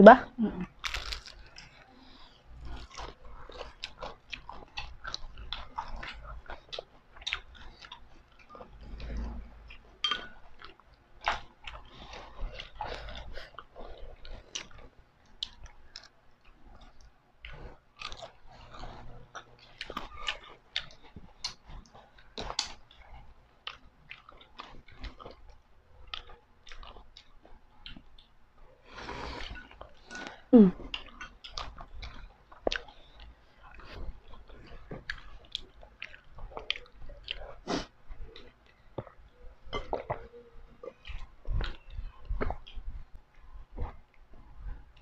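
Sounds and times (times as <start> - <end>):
crunchy food chewing: 0.6 - 9.9, 10.5 - 28.3, 28.9 - 45.0
wet mouth sounds: 33.7 - 45.0.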